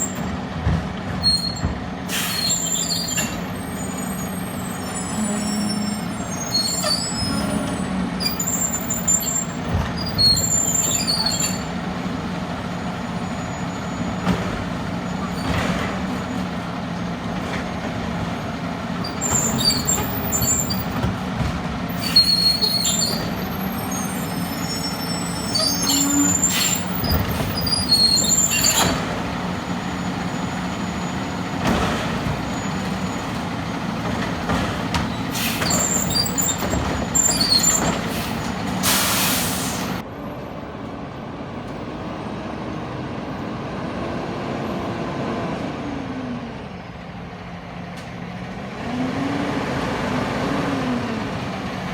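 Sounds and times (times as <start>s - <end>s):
garbage truck diesel engine running: 0.0s - 40.6s
high squeals: 1.2s - 11.8s, 21.9s - 31.6s, 35.1s - 40.0s
air hisses: 38.2s - 40.0s.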